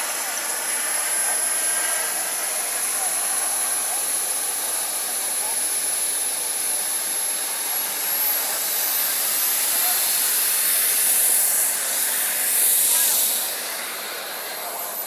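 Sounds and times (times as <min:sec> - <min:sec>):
model jet turbine whine: 0:00.0 - 0:15.0
rushing hiss: 0:08.4 - 0:15.0.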